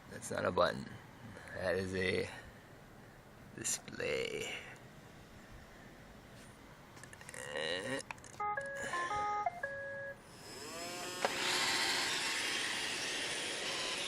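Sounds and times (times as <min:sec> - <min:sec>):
robot vacuum melody beeps: 0:08.4 - 0:10.2
vacuum motor whine and hiss: 0:10.3 - 0:14.0.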